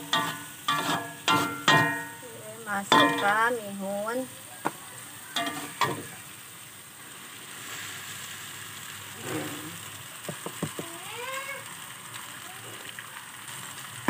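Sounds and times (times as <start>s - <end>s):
meat and egg sizzling in wok: 0.0s - 14.0s
spatula knocking on pan: 0.1s - 2.2s, 2.9s - 3.3s, 10.2s - 11.0s.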